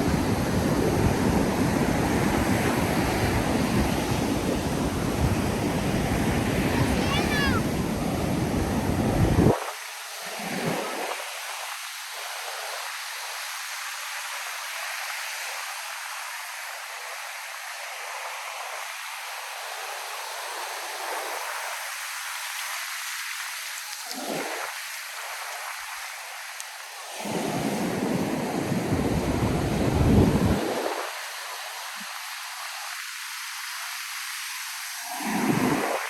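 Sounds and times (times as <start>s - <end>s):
wind on microphone: 0.0s - 9.7s, 27.2s - 31.2s, 35.2s - 36.0s
surf washing onto beach: 0.0s - 11.9s, 20.0s - 36.0s.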